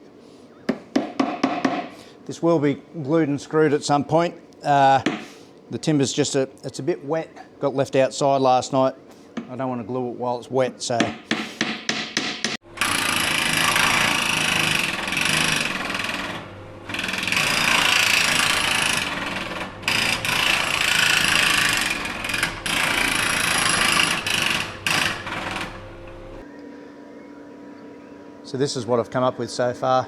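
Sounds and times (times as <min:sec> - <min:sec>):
power tool working timber: 0:12.6 - 0:26.4.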